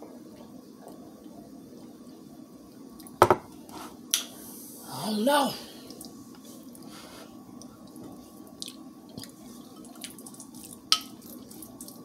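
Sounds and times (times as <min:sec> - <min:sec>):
person chewing soft food: 0:07.6 - 0:12.0.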